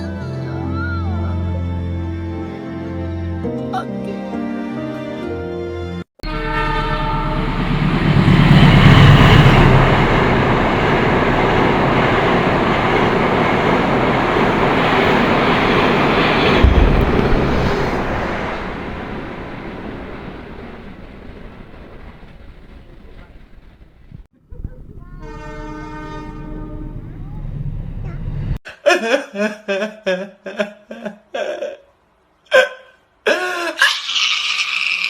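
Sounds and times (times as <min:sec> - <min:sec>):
locomotive engine rumble: 0:06.2 - 0:28.6
train carriages rushing rattle: 0:06.2 - 0:28.6.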